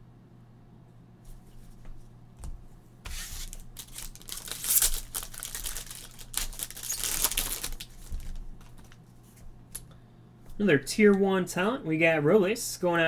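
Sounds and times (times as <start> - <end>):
wrapper crinkling and tearing: 3.1 - 9.0.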